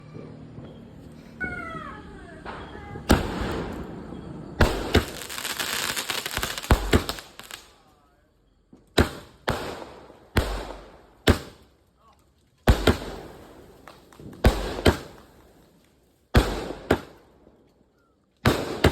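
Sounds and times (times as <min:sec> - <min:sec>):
firework bangs: 0:00.0 - 0:07.9, 0:08.6 - 0:11.7, 0:12.6 - 0:15.7, 0:16.3 - 0:17.5, 0:18.4 - 0:18.9
firework crackling: 0:00.0 - 0:07.9, 0:12.6 - 0:17.2
faint falling whistles: 0:00.0 - 0:08.8.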